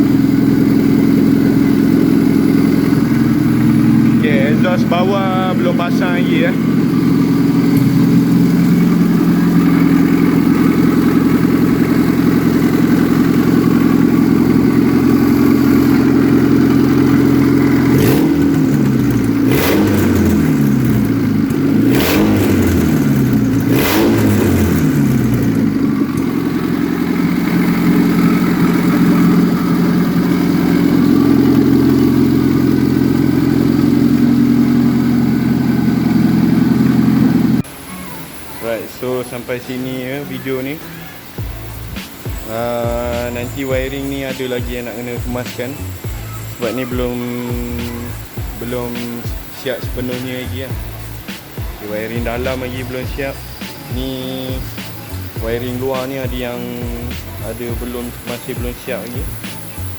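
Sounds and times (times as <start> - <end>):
car engine idling and revving: 0.0 - 59.9
exhaust cracks: 0.0 - 59.9.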